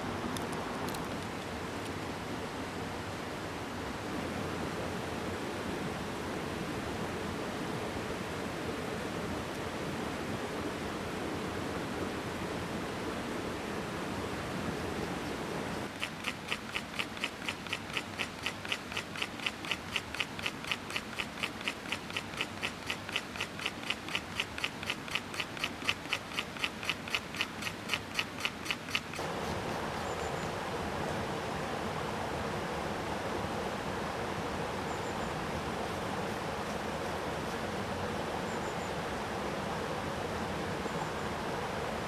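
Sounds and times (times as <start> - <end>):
mountain stream rushing: 0.0 - 42.0
rasping strokes: 15.9 - 29.6.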